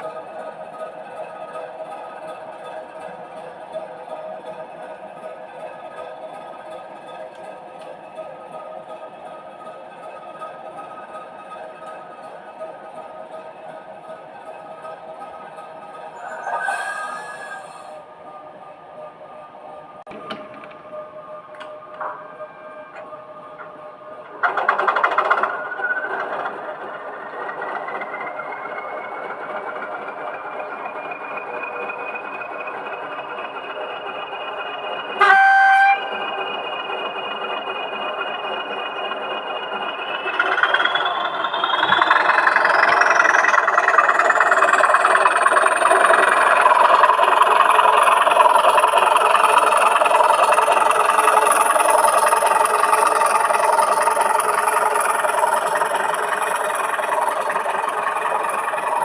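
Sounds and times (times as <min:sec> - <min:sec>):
model locomotive whine: 0:00.0 - 0:59.0
locomotive horn blast: 0:35.2 - 0:36.2.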